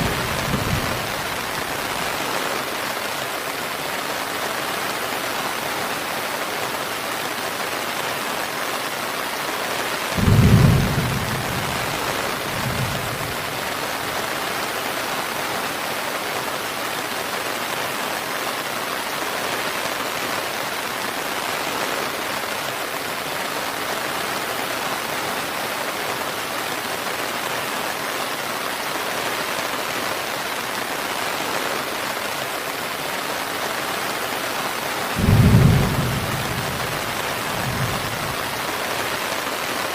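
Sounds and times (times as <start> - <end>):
low rumble of thunder: 0.0 - 1.3, 10.2 - 13.6, 35.2 - 38.6
heavy rain: 0.0 - 39.9.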